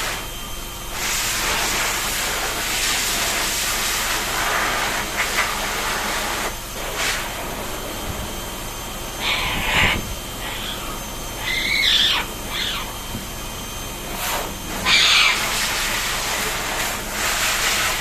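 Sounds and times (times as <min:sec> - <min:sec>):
water spraying: 0:14.1 - 0:18.0.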